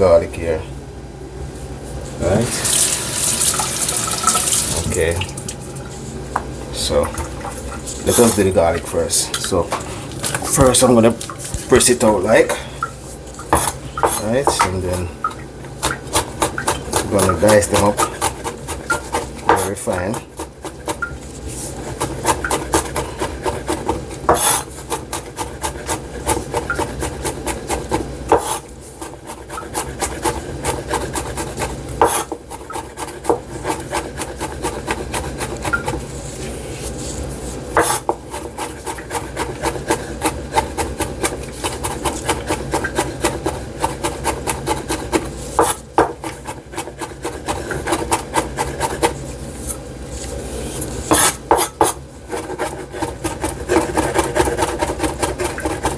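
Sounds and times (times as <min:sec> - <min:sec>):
knife chopping on cutting board: 0:13.5 - 0:14.8, 0:15.8 - 0:21.1, 0:21.8 - 0:36.0, 0:37.8 - 0:49.2, 0:51.1 - 0:55.9.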